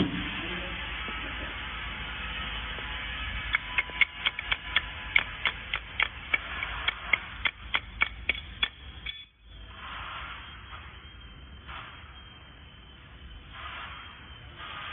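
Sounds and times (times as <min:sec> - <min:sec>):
steady machine noise: 0:00.0 - 0:14.9
spot welder sharp snaps: 0:03.5 - 0:09.2.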